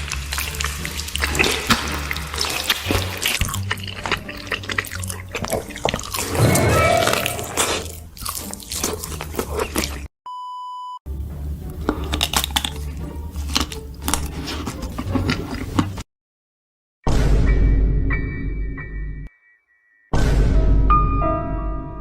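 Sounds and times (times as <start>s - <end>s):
background music: 0.0s - 10.0s, 11.1s - 16.0s
close biting and chewing food: 0.0s - 10.1s, 11.2s - 16.1s.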